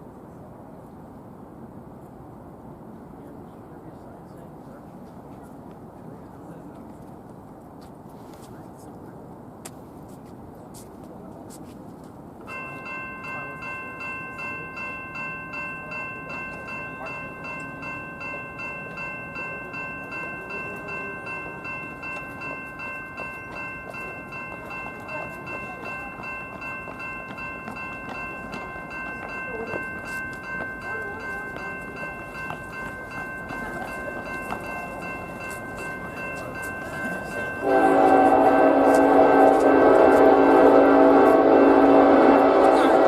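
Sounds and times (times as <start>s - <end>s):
freight train rumbling: 12.2s - 43.0s
crossing warning bell ringing: 12.4s - 43.0s
train horn blast: 37.6s - 43.0s.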